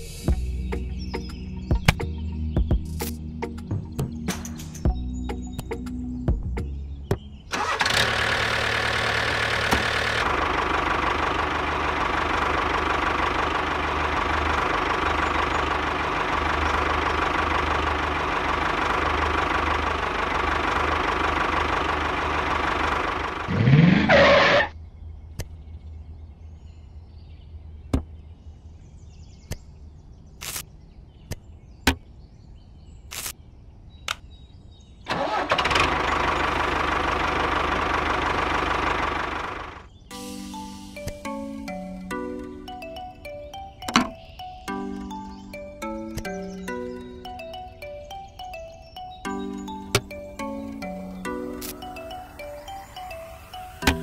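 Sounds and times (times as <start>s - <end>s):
model tractor engine drone: 7.5s - 24.7s, 35.1s - 39.9s.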